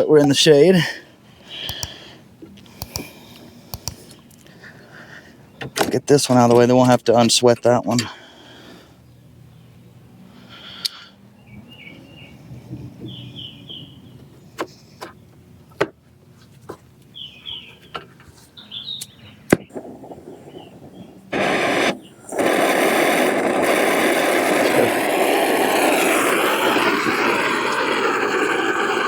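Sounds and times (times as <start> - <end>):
sharp metallic clicks: 1.6 - 2.0, 2.7 - 4.2
birds chirping: 2.8 - 16.4, 17.0 - 29.0
torch flame roaring: 19.7 - 29.0.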